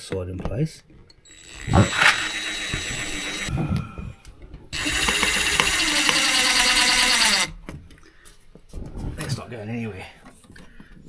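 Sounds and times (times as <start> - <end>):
power drill driving a screw: 1.3 - 3.6, 4.8 - 7.6.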